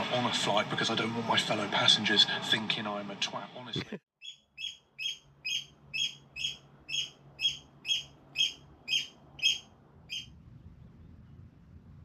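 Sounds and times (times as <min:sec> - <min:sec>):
bird calling sharply: 0:04.2 - 0:10.3.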